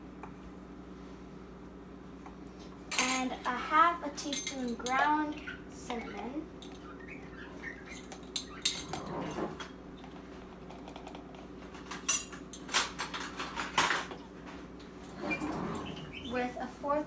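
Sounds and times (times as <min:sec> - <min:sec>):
spoon clinking against dishes: 0:07.9 - 0:09.0, 0:12.0 - 0:12.7.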